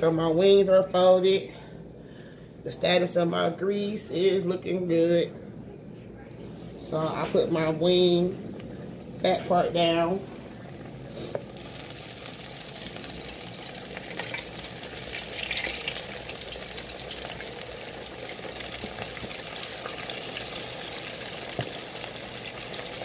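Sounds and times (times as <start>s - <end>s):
chicken wings frying in grease: 10.7s - 23.0s.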